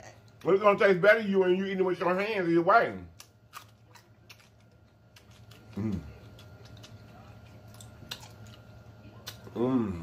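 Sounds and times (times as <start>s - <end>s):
mouth chewing food: 3.1s - 10.0s
man humming mm: 5.7s - 6.2s, 9.5s - 10.0s.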